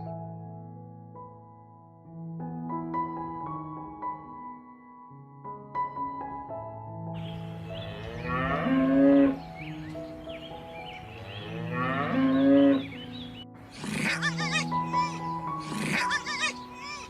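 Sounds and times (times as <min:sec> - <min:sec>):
cow mooing: 0:07.6 - 0:09.8, 0:11.1 - 0:13.0, 0:13.7 - 0:17.0
high wavering animal call: 0:13.7 - 0:17.0.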